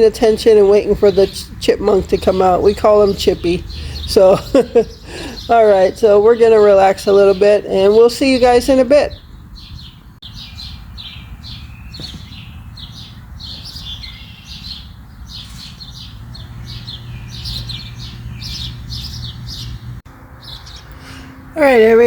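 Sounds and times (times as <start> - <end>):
bird fledglings squawking: 8.7 - 21.8.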